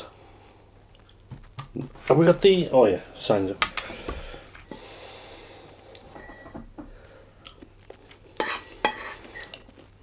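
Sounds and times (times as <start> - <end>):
cutlery clinking on a plate: 8.4 - 9.6.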